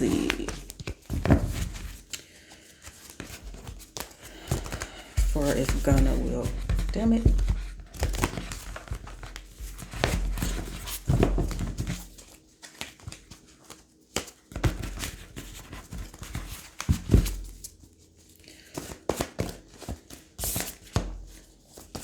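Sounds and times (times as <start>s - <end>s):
cards being shuffled: 0.0s - 17.4s.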